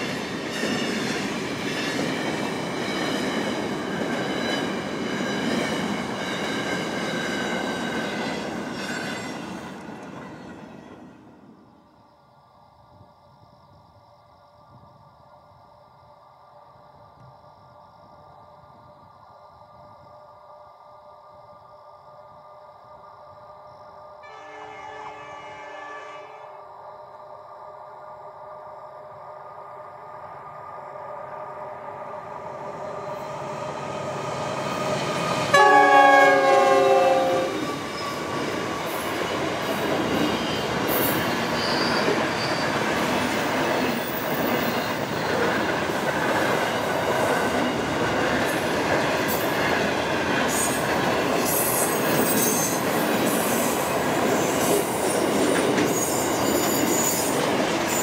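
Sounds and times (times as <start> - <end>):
diesel freight train passing: 0.0 - 11.9, 24.2 - 58.0
locomotive chord horn: 24.2 - 26.6, 35.5 - 37.6
high wheel squeals: 40.3 - 43.0.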